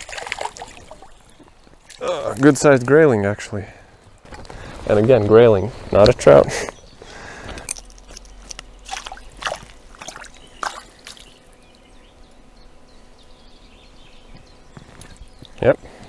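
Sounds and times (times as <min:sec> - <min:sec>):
water splashes and drips: 0:00.0 - 0:02.9, 0:07.6 - 0:11.6
faint steady stream: 0:00.0 - 0:16.0.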